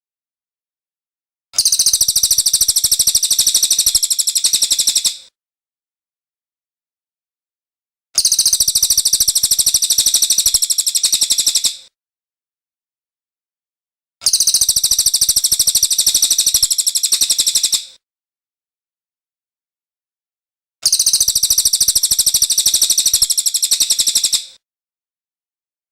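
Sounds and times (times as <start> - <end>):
songbird singing rapid notes: 8.2 - 11.8, 14.2 - 17.9, 20.9 - 24.5.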